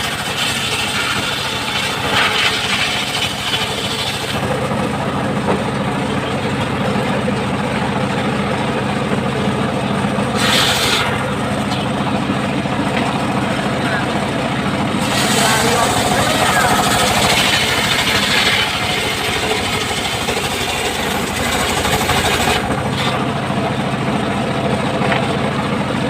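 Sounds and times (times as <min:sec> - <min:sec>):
circular saw motor hum: 0:00.0 - 0:25.1
saw blade hissing through wood: 0:10.4 - 0:11.1, 0:15.0 - 0:23.2.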